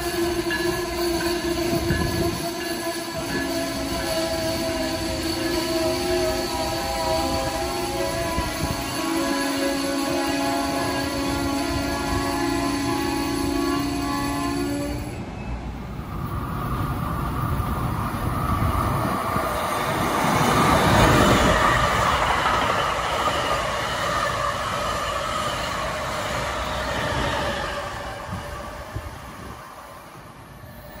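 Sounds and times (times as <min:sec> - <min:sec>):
train passing: 0:00.0 - 0:31.0.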